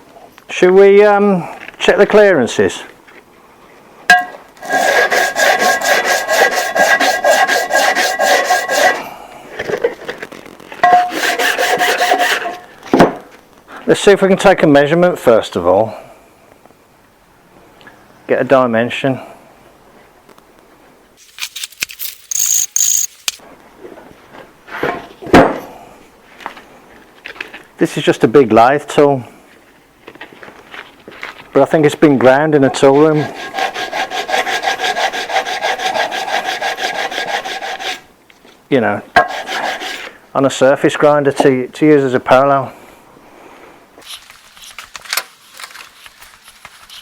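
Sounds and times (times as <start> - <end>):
heavy metal tool clunk: 4.1 - 4.4, 10.8 - 11.1
tools scraping and rattling: 4.1 - 9.0, 9.6 - 13.3
hand scraping back and forth: 4.1 - 9.1, 10.5 - 12.7, 32.5 - 38.1, 39.2 - 40.2
steady squealing tone: 22.3 - 23.1.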